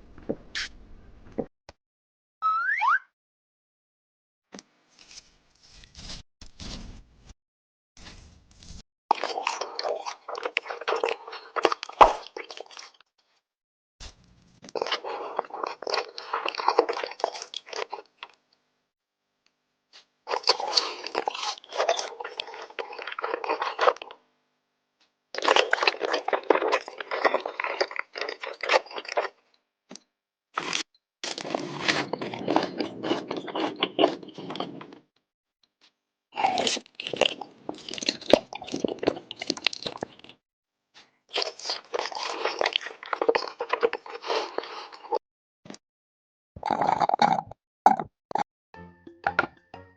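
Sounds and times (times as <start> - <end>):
crunchy biting and chewing: 9.1 - 13.0, 14.6 - 18.4, 20.3 - 24.2, 25.4 - 29.4, 30.6 - 34.7, 36.4 - 40.4, 41.3 - 45.2, 46.6 - 48.0.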